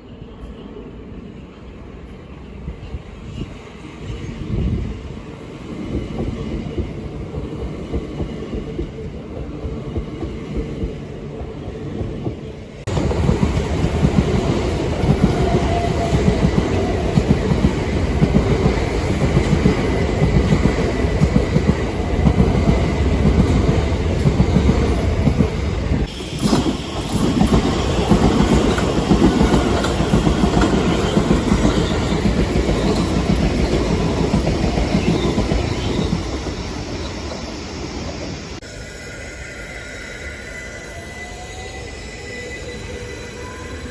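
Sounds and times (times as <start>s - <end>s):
train wheels clattering over rails: 12.0s - 37.5s
train wheel squeal: 13.8s - 20.3s, 25.8s - 43.9s.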